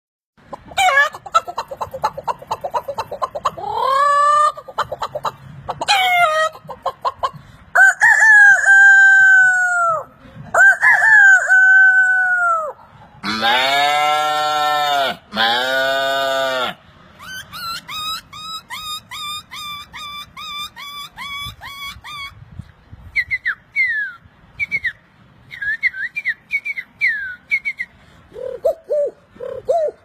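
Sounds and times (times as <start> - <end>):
man clucking like a chicken: 0.4 - 22.4
man imitating rooster crows: 7.8 - 16.8
man making bleat-like call: 13.2 - 16.8.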